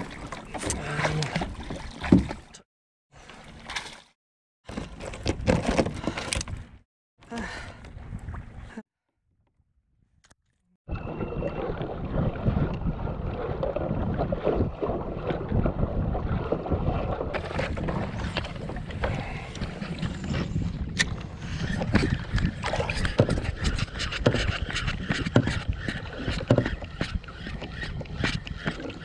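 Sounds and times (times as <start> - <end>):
water splashes: 0.0 - 2.6, 10.9 - 29.0
wind: 0.0 - 8.8, 9.4 - 29.0.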